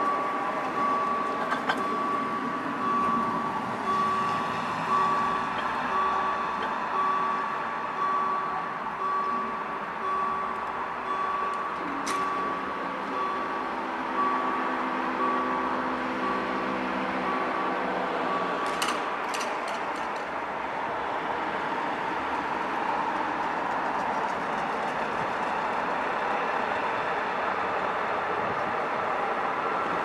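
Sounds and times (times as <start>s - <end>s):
level crossing warning beeps: 0.0s - 19.6s.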